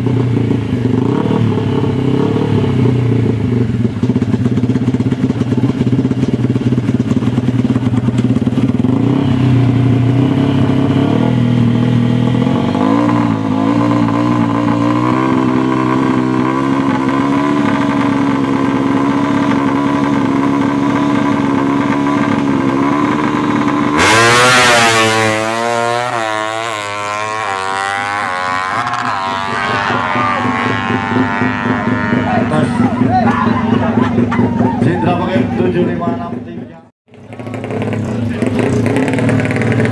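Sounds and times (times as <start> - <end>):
motorcycle engine revving hard: 0.0 - 36.4, 37.1 - 39.9.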